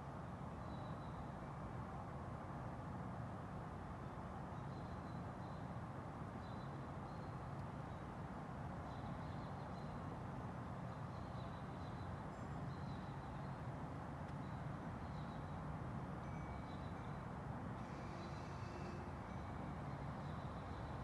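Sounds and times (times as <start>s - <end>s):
small songbirds chirping: 10.7s - 15.6s.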